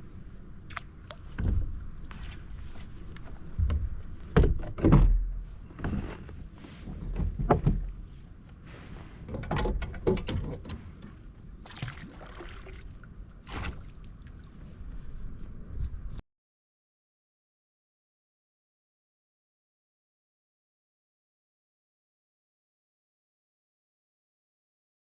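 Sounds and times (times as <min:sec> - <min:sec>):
knocks and hollow thunks of kayak: 0:01.3 - 0:01.8, 0:03.6 - 0:06.2, 0:07.0 - 0:08.0.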